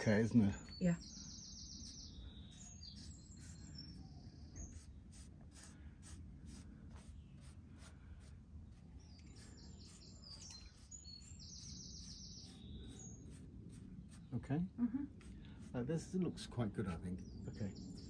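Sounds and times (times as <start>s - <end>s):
bird chirping trills: 0.0s - 5.2s, 8.6s - 14.4s, 16.9s - 18.0s.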